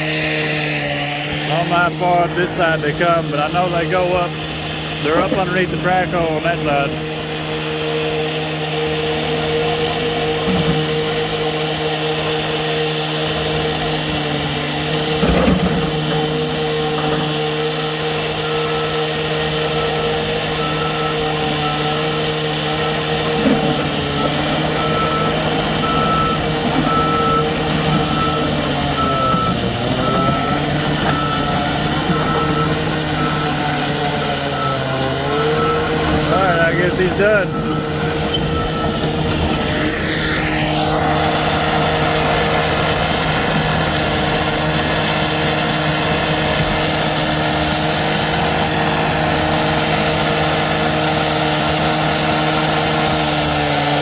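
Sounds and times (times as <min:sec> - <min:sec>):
diesel engine running: 0:00.0 - 0:54.0
backup alarm beeps: 0:19.7 - 0:33.8, 0:34.5 - 0:39.8.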